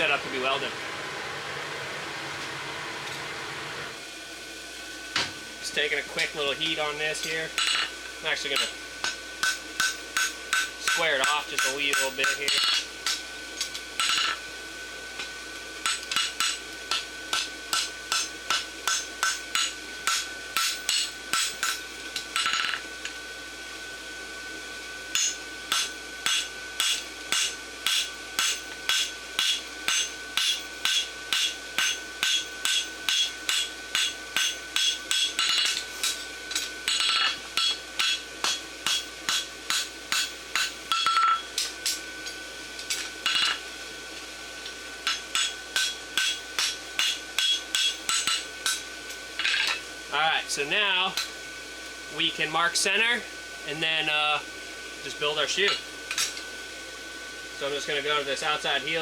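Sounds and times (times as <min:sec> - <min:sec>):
hammer striking steel on anvil: 0:07.2 - 0:07.9, 0:08.5 - 0:14.4, 0:15.8 - 0:21.8, 0:22.4 - 0:22.8, 0:25.1 - 0:42.0, 0:42.9 - 0:43.6, 0:45.0 - 0:49.8.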